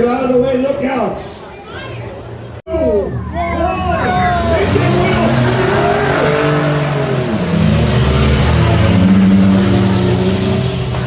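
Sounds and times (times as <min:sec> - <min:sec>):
engines revving hard: 0:03.1 - 0:11.0.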